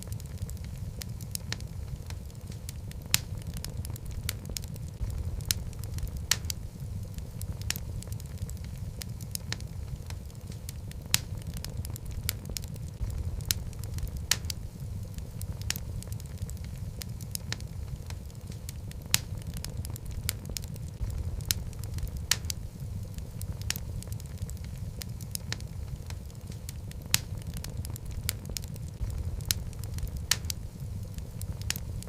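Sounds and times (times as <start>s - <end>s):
fire flames rumbling: 0.0s - 32.0s
logs crackling and popping: 0.0s - 32.0s.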